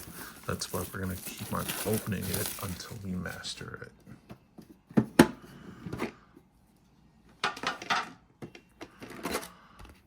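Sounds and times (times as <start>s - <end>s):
card and wrapper rustling: 0.0s - 3.6s.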